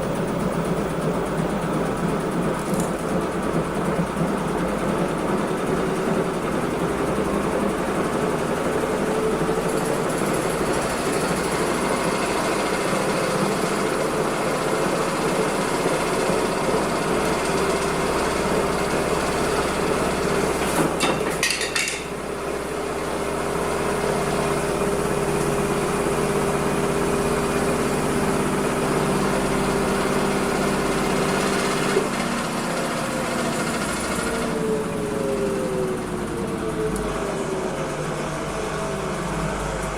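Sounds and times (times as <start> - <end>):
washing machine rattling: 0.0 - 22.4
washing machine motor whine: 0.0 - 39.9.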